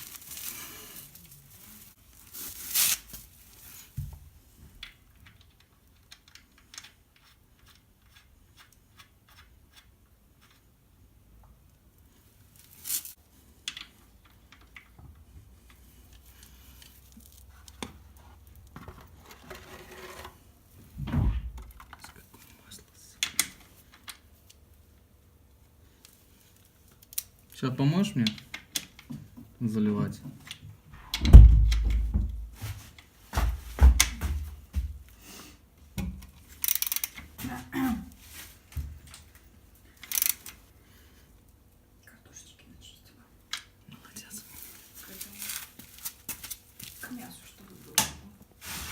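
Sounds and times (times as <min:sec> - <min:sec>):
heavy low thump: 0:21.0 - 0:21.6, 0:31.2 - 0:32.6
objects knocking and clunking: 0:31.0 - 0:35.0.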